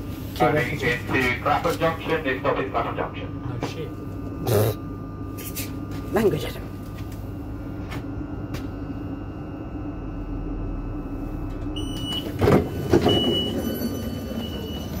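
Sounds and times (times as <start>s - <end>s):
train interior hum: 0.0s - 15.0s
sliding doors clunking open: 12.0s - 15.0s.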